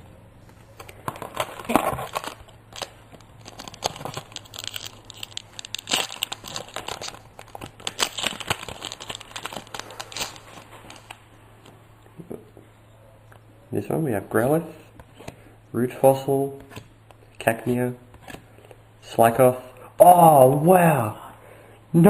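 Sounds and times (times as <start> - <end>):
wrapper tearing and crinkling: 0.8 - 11.2.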